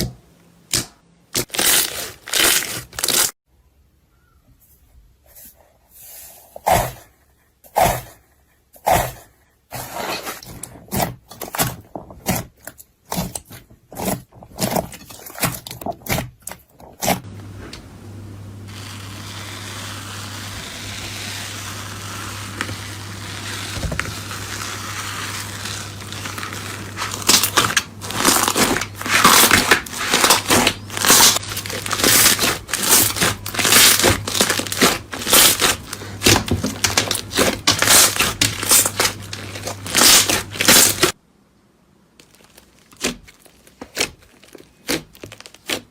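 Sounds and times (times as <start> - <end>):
slime crunching and crackling: 1.4 - 3.4, 10.4 - 17.2, 18.7 - 41.2, 42.2 - 45.9.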